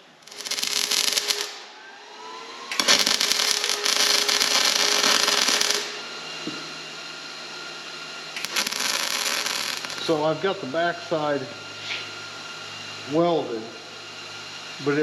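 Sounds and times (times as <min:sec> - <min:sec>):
arc welding crackling hiss: 0:00.0 - 0:01.7, 0:02.7 - 0:06.6, 0:08.4 - 0:12.2.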